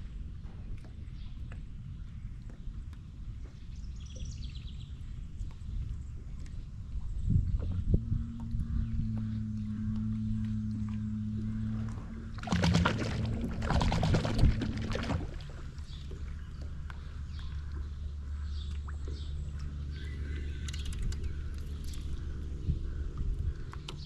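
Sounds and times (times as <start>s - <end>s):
boat motor humming: 0.1s - 24.0s
rushing water splash: 12.4s - 15.8s.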